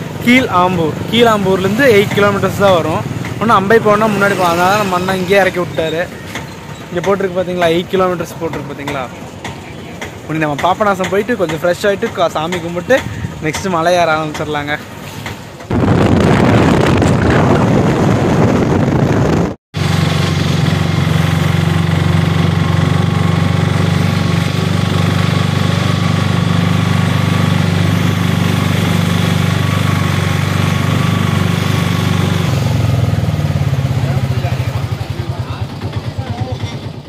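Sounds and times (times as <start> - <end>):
vehicle engine running steadily: 0.0 - 37.0
loud rushing noise: 15.0 - 35.0.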